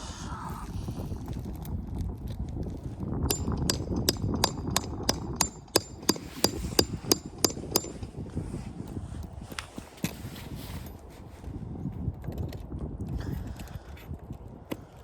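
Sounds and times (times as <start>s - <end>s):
hammer striking nail: 3.3s - 8.1s.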